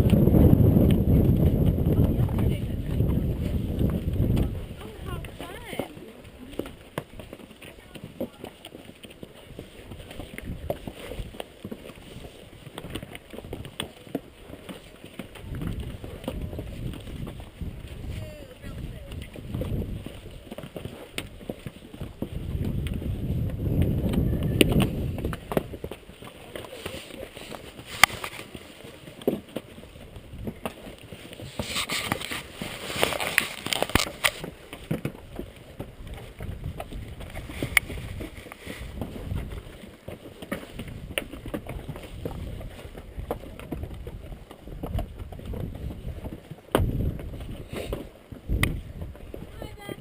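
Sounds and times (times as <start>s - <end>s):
gusty wind buffeting microphone: 0.0s - 5.8s, 15.4s - 20.4s, 22.1s - 25.9s, 36.0s - 39.7s, 40.8s - 50.0s.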